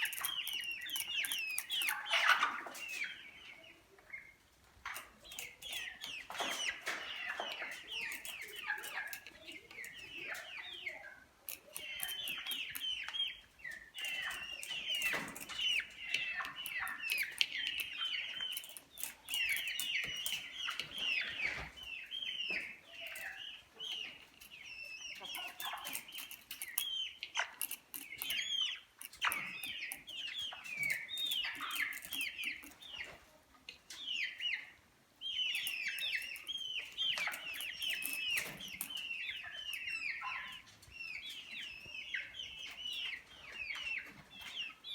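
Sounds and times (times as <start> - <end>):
sharp clicks: 0.0 - 2.4, 25.2 - 32.9
chickens calling: 0.0 - 44.9.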